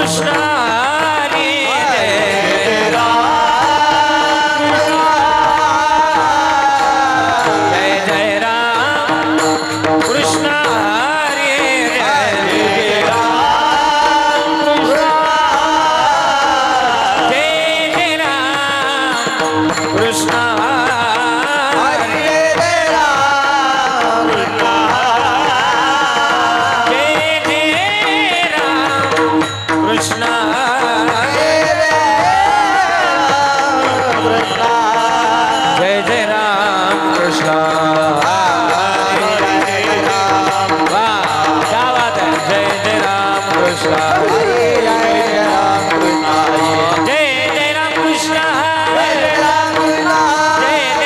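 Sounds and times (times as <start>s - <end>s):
man singing ornamented melody: 0.0s - 51.0s
mridang drum: 0.0s - 51.0s.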